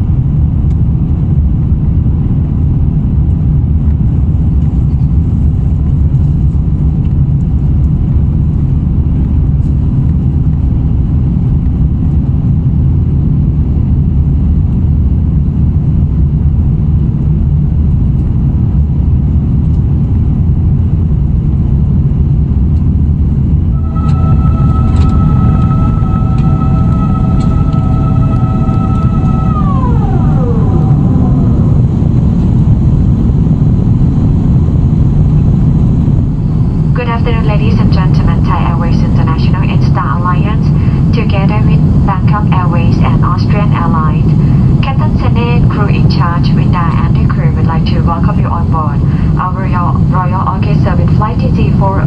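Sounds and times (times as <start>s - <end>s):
aircraft cabin engine rumble: 0.0s - 52.0s
steady higher tones: 23.6s - 34.2s, 36.2s - 52.0s.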